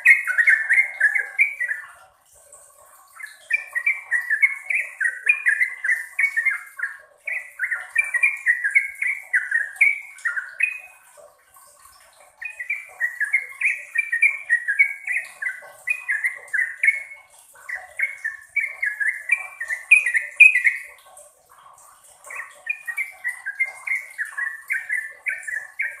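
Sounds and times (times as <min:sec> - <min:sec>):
bulbul singing warbled notes: 0:00.0 - 0:02.0, 0:12.4 - 0:21.0, 0:22.2 - 0:26.0.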